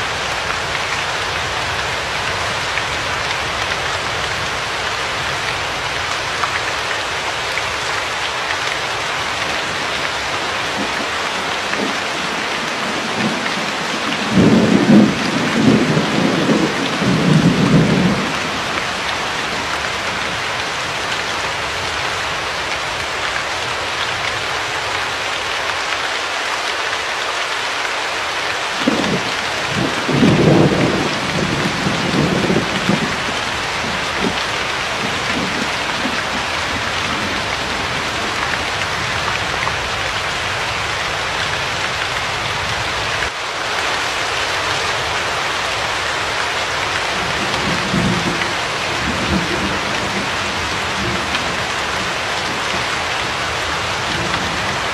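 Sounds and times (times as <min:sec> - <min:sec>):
heavy rain hissing: 0:00.0 - 0:54.9
thunder rumbling: 0:09.5 - 0:20.2, 0:28.8 - 0:40.0, 0:47.0 - 0:54.9.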